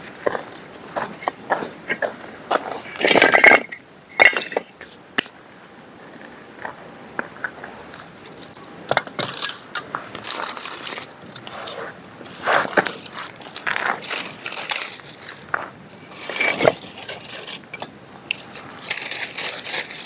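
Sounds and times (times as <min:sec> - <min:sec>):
crunching and cracking: 0:08.4 - 0:20.0.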